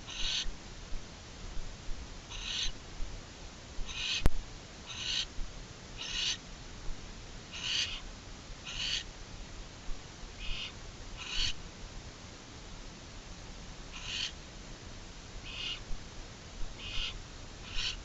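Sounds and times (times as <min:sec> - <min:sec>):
owls hissing calls: 0:00.0 - 0:00.5, 0:02.3 - 0:02.8, 0:03.8 - 0:05.3, 0:06.0 - 0:06.4, 0:07.5 - 0:09.1, 0:10.4 - 0:11.6, 0:13.9 - 0:14.4, 0:15.4 - 0:15.9, 0:16.8 - 0:18.0.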